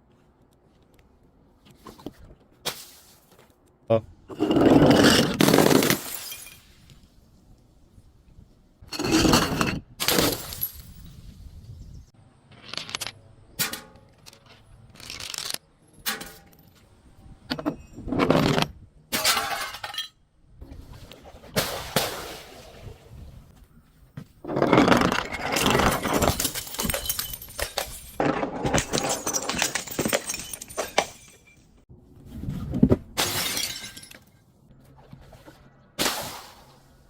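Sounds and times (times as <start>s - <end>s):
glass breaking and crunching: 5.2s - 6.8s, 24.8s - 31.8s, 33.2s - 34.4s.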